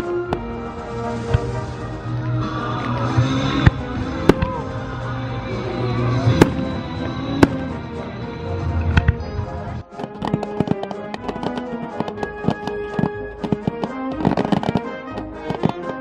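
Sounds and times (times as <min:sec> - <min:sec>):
music playing: 0:00.0 - 0:16.0
firework shell bursts: 0:09.9 - 0:16.0.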